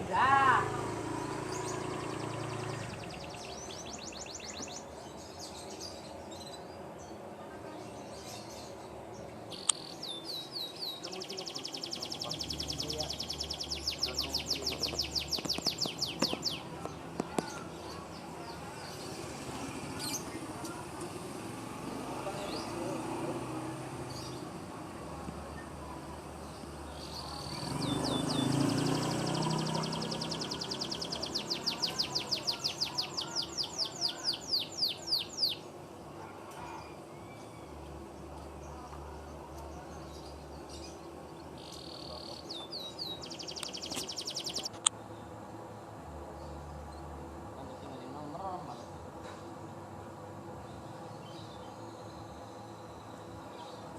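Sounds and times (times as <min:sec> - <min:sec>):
canary singing: 0:00.0 - 0:06.8, 0:07.9 - 0:20.6, 0:25.6 - 0:35.7, 0:39.2 - 0:44.8.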